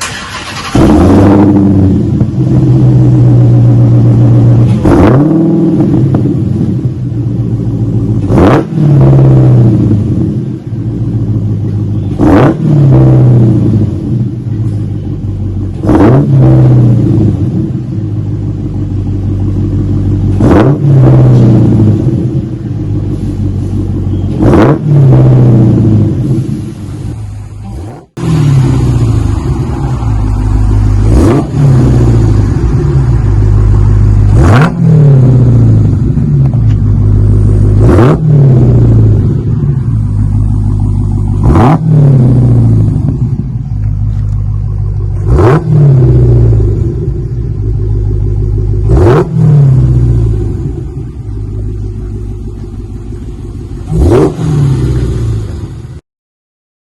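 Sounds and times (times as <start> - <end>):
car engine revving: 0.0 - 56.0
deep engine idle rumble: 9.7 - 12.2, 13.2 - 15.8, 16.6 - 20.4, 21.2 - 24.4, 25.2 - 34.4, 35.1 - 56.0.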